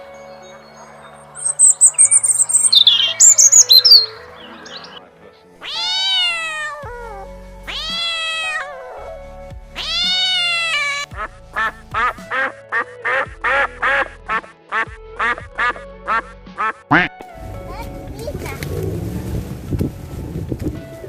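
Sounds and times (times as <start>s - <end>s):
background music: 0.0s - 21.0s
cat meowing: 5.6s - 9.2s, 9.8s - 11.1s.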